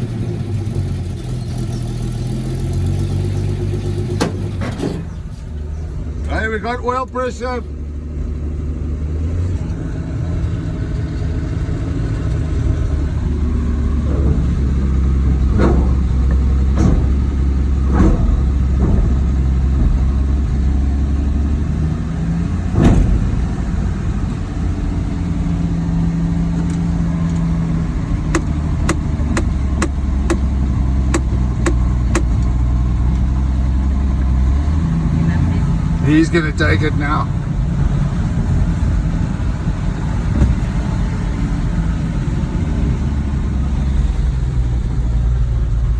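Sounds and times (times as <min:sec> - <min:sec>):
pickup truck engine running: 0:00.0 - 0:45.9
sharp clicks or knocks: 0:13.6 - 0:20.2, 0:28.1 - 0:32.6.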